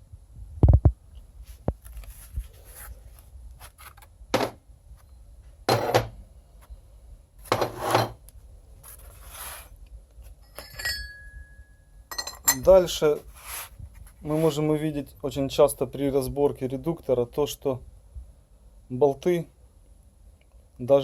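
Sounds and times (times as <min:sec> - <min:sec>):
heavy thump on workbench: 0:04.3 - 0:04.6, 0:05.7 - 0:06.2
metal clinking and scraping: 0:05.7 - 0:06.2, 0:07.4 - 0:08.2, 0:10.4 - 0:12.8.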